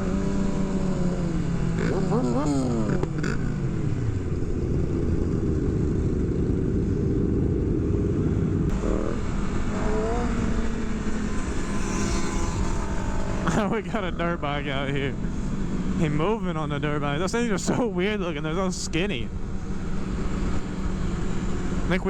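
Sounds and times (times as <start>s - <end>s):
motorcycle engines running: 0.0s - 22.0s
motorcycle revs rising: 0.0s - 22.0s
heavy low rumble: 2.7s - 19.5s.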